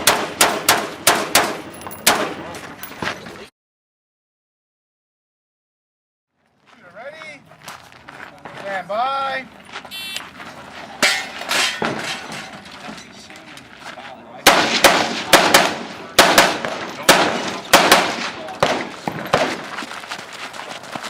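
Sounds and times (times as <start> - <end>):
rifle shots: 0.0 - 2.4, 14.4 - 19.6.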